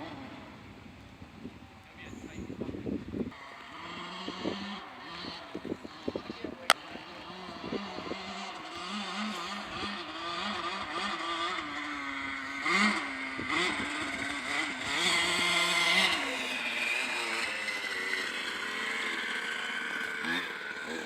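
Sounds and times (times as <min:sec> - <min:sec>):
two-stroke dirt bike engine: 0:03.2 - 0:21.0.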